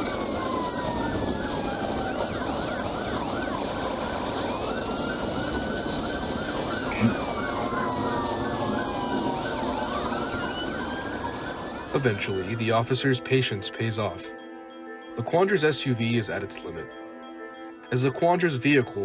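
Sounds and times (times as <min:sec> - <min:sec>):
road and engine noise: 0:00.0 - 0:14.3
police siren wail: 0:00.0 - 0:19.0
police siren yelp: 0:00.0 - 0:19.0.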